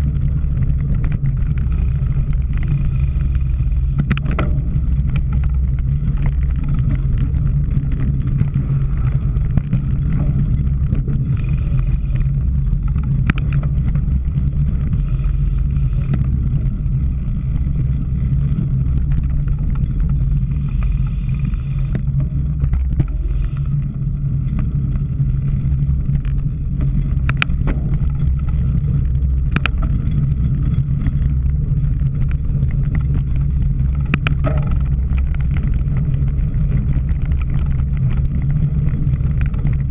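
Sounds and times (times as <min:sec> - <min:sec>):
low rumble of wind and rolling: 0:00.0 - 0:39.9
sharp clicks and knocks: 0:03.3 - 0:11.3, 0:11.9 - 0:14.9, 0:24.5 - 0:39.9.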